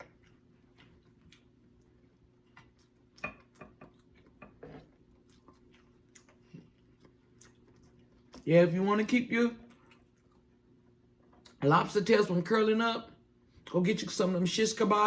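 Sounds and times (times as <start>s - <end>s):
faint low hum: 0.0s - 14.9s
wet chewing smacks: 0.1s - 8.5s.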